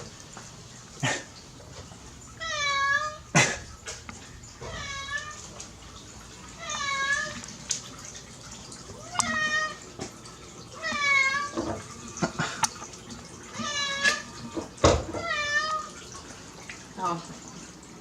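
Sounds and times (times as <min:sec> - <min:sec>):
cat meowing: 0:02.4 - 0:03.2, 0:04.6 - 0:05.5, 0:06.6 - 0:07.5, 0:09.0 - 0:09.8, 0:10.8 - 0:11.6, 0:13.5 - 0:15.9.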